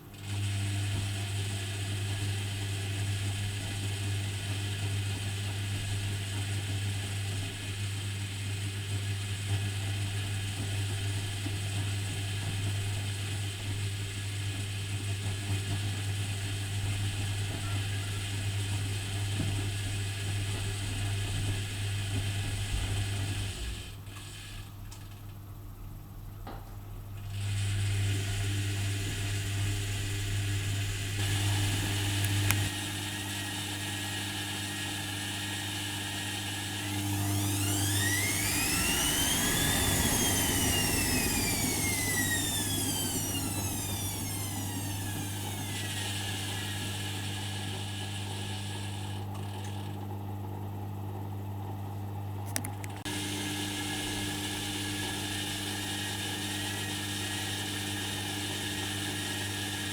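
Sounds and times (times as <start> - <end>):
washing machine humming: 0.0 - 59.9
drum motor whining: 27.4 - 49.8, 52.6 - 59.9.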